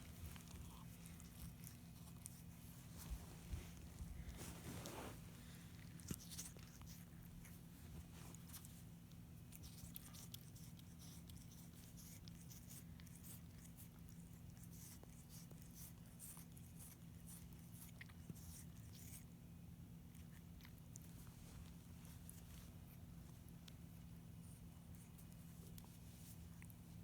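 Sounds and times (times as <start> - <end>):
cat claws ticking and scratching: 0.0 - 4.5, 5.8 - 19.2
low steady hum: 0.0 - 27.0.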